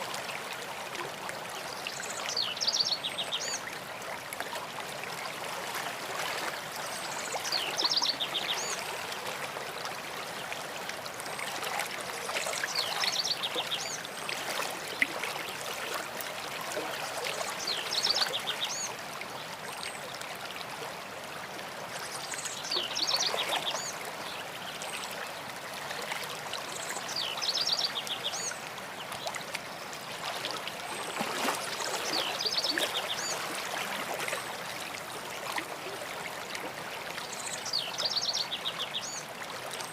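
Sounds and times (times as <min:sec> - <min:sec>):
stream running: 0:00.0 - 0:39.9
songbird singing: 0:37.2 - 0:39.2.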